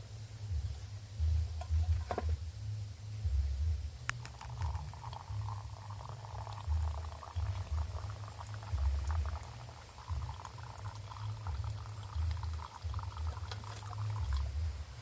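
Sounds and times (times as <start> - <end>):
coffee bubbling: 4.1 - 15.0.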